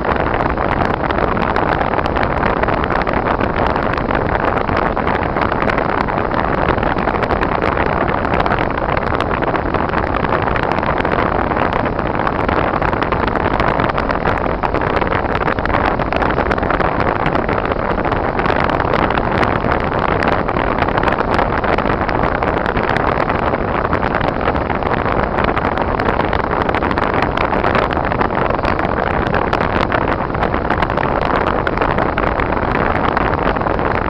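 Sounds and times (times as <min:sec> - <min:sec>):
wind: 0:00.0 - 0:34.0.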